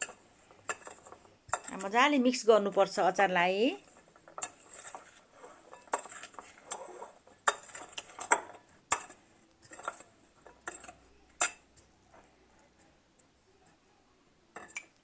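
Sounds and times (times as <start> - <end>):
spoon scraping a bowl: 0.0 - 2.0, 3.8 - 12.3.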